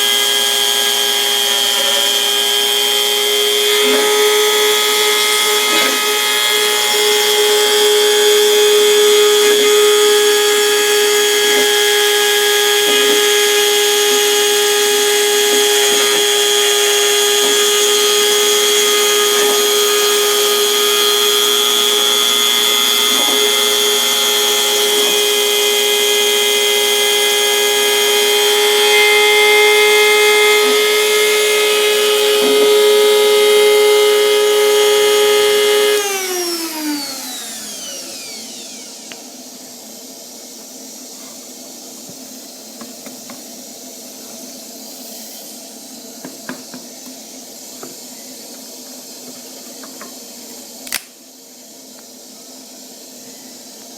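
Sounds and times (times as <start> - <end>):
router spindle whining: 0.0 - 39.6.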